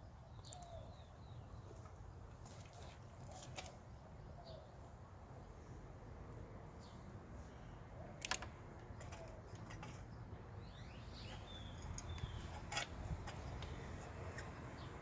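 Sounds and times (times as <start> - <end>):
bird chirping: 0.0 - 1.9, 6.8 - 15.0.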